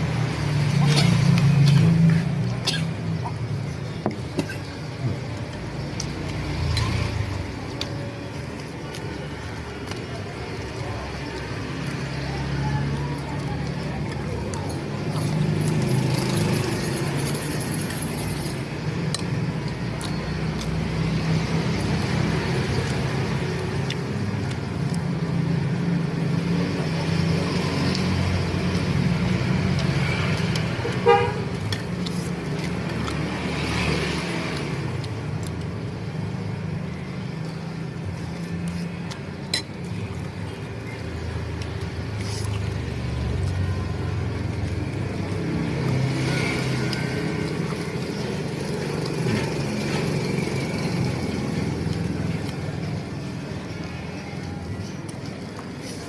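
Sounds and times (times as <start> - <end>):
road traffic rumble: 0.0 - 56.0
vehicle horn toot: 31.0 - 31.5.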